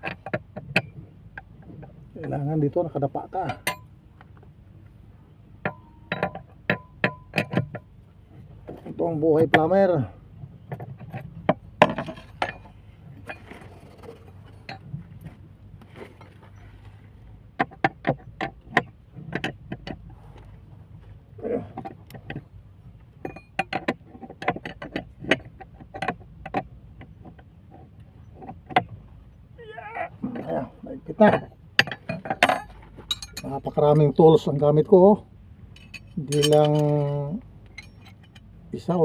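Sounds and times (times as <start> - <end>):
metal tools clicking on pipe fitting: 31.8 - 33.6, 35.8 - 38.5.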